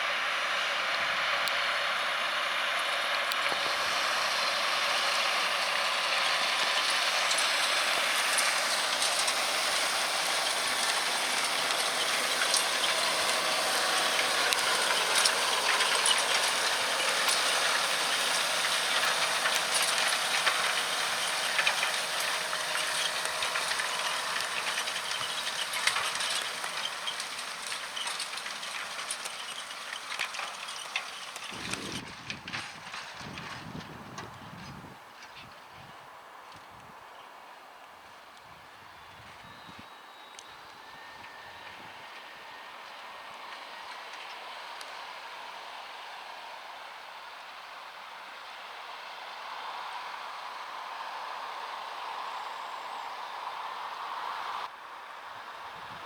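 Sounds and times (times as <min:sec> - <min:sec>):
tractor ploughing: 0:00.0 - 0:35.9, 0:38.1 - 0:56.0
small crackling clicks: 0:05.6 - 0:34.4.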